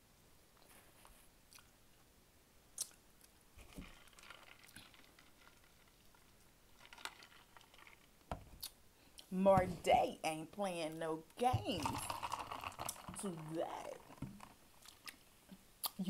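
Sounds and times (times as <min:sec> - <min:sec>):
person chewing food: 0:01.5 - 0:01.7, 0:02.8 - 0:03.4, 0:14.3 - 0:16.0.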